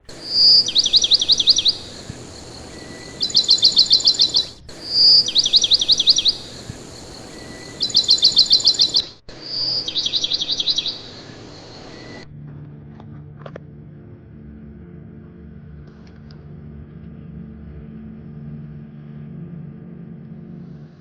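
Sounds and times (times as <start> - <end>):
clear whistled bird note: 0.1 - 12.3
songbird singing rapid high notes: 0.1 - 12.3.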